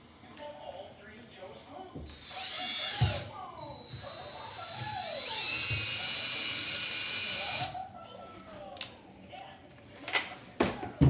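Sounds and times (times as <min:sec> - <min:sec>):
power drill whining: 0:02.1 - 0:07.8.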